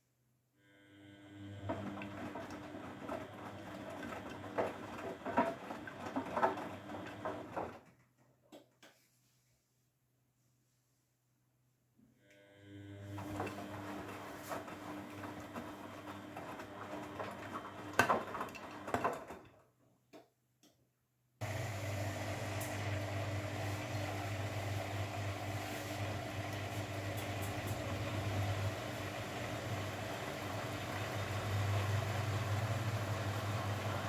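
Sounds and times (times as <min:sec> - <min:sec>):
low motor hum: 0:21.4 - 0:34.0.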